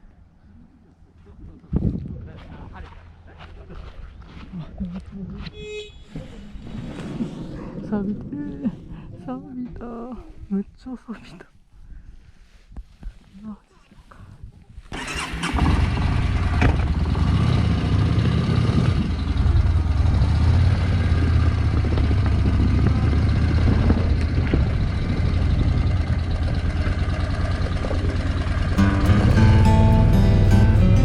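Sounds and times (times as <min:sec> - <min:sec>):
motorcycle engine starting and idling: 0:14.9 - 0:31.0.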